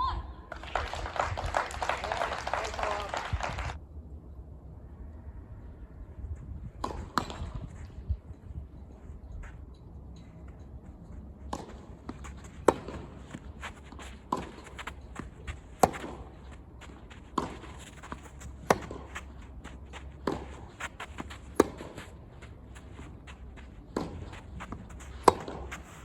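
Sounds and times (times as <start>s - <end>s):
tennis ball bouncing: 6.8s - 7.6s, 11.3s - 26.0s
players' footsteps: 6.8s - 26.0s
tennis ball struck by rackets: 11.5s - 26.0s.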